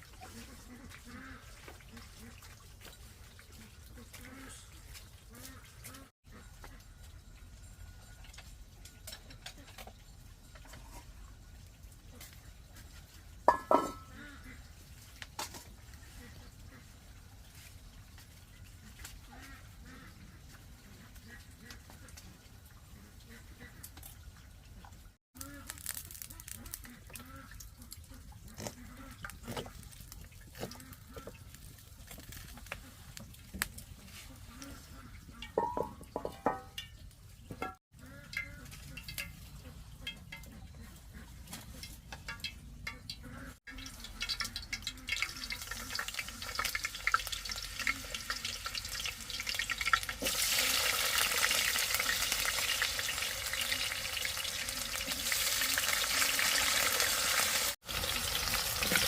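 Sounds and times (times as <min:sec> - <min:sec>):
chips sizzling in hot oil: 0:25.4 - 0:27.2, 0:43.7 - 0:59.0.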